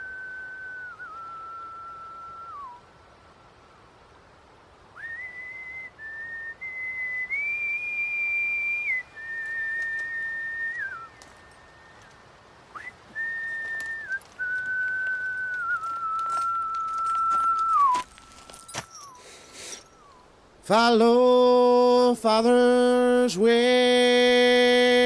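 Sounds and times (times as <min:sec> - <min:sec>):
person whistling a slow tune: 0:00.0 - 0:02.8, 0:05.0 - 0:20.3.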